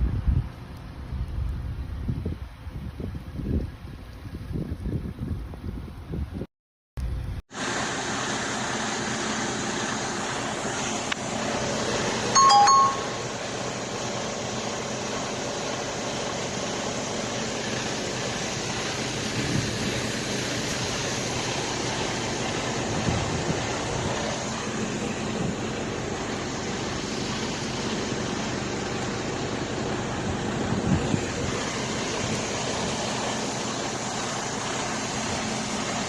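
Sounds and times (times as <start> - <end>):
electronic two-note chime: 12.4 - 13.3.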